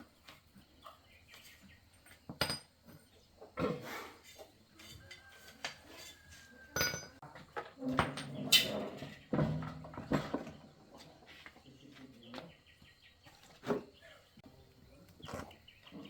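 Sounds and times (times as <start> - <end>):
metal tools clinking and knocking: 2.0 - 3.6, 4.2 - 10.5.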